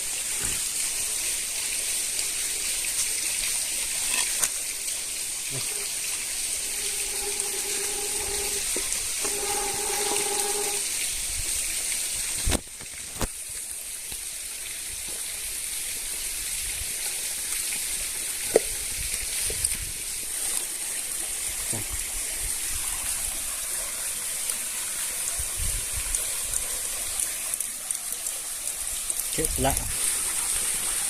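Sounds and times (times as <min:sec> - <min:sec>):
water rushing in a stream: 0:00.0 - 0:31.0
high-pitched whine: 0:05.5 - 0:10.9
long low steady tones: 0:05.5 - 0:11.0.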